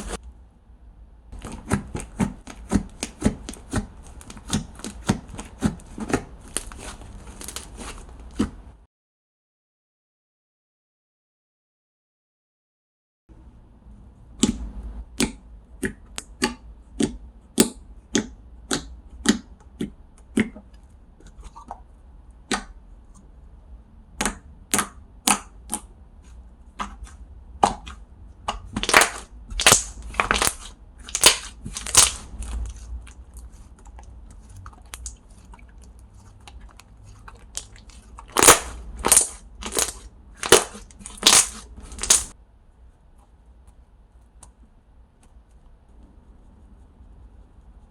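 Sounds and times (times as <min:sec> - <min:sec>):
slime air-bubble pops: 0:38.4 - 0:42.3.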